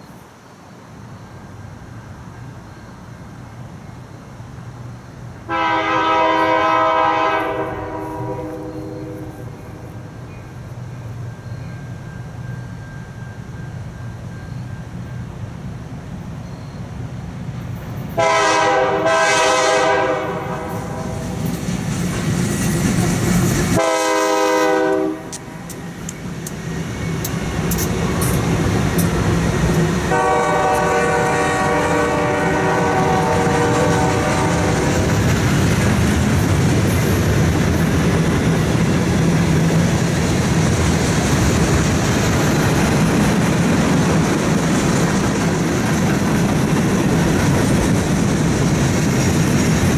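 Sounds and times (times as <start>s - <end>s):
train rumbling past: 0.0s - 49.9s
locomotive air horn blasts: 5.5s - 9.8s, 18.2s - 21.4s, 23.8s - 25.5s, 30.1s - 35.0s
train wheels clicking: 20.6s - 49.9s.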